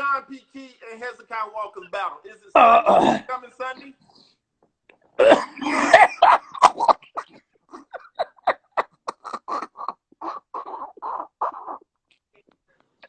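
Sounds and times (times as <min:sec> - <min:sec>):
man laughing hard: 0:05.6 - 0:11.8.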